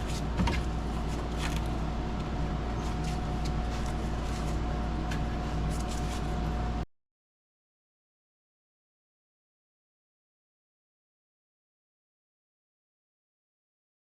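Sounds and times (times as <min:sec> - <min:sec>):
steady background hum: 0:00.0 - 0:06.9.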